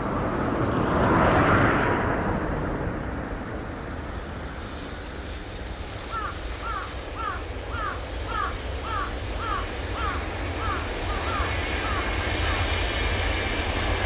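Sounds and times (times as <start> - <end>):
freight train passing: 0.0 - 14.0
bird calling: 6.0 - 12.8.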